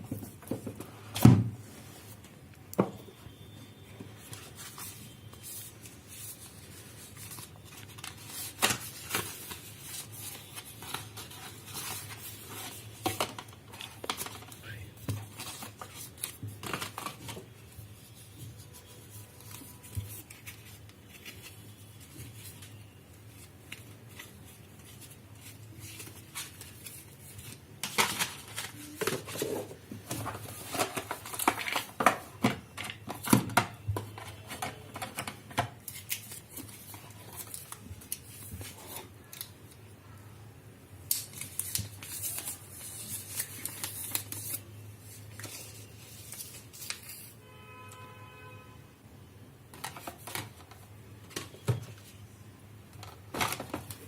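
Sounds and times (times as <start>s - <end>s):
packaging clicks and scrapes: 25.5s - 39.5s.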